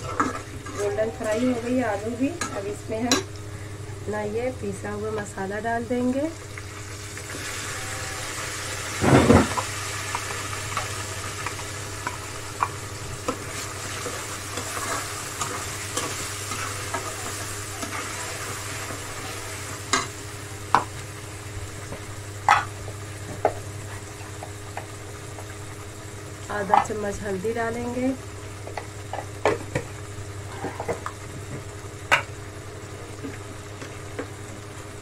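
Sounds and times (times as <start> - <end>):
paste sizzling in hot oil: 6.4 - 27.0.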